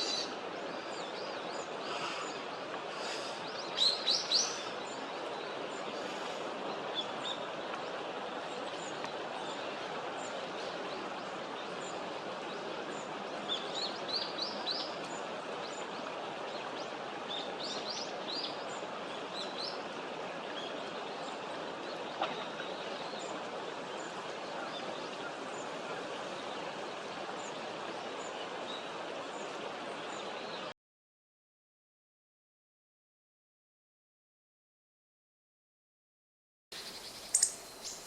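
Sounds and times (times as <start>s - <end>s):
outdoor hiss: 0.0s - 7.0s, 36.8s - 38.0s.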